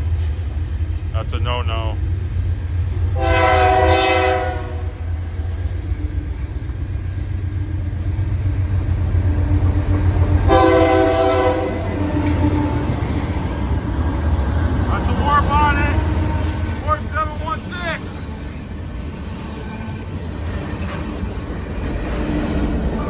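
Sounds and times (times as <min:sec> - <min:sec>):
passing train rumble: 0:00.0 - 0:23.0
locomotive air horn blasts: 0:03.2 - 0:05.0, 0:10.5 - 0:12.8.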